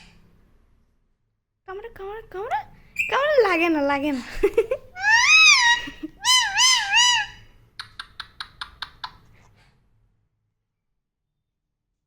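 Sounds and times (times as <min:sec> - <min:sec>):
parrot screeching: 0:05.0 - 0:07.5
parrot clicking calls: 0:05.0 - 0:09.2.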